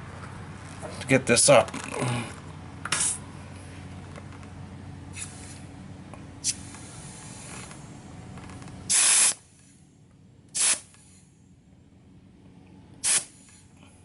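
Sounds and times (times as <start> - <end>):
steady low hum: 0.0 - 14.0
compressed air hissing: 2.9 - 3.2, 5.1 - 5.6, 6.4 - 7.9, 8.9 - 9.8, 10.5 - 11.4, 13.0 - 13.7.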